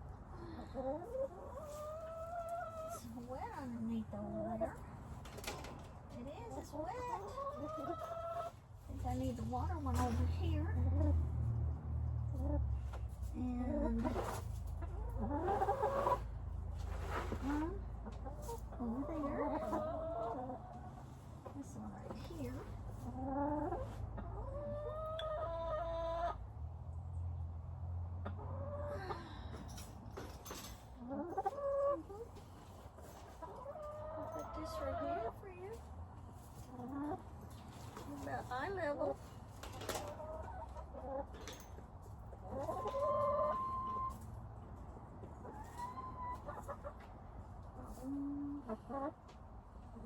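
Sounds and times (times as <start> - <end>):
chickens clucking: 0.0 - 29.2, 30.2 - 50.0.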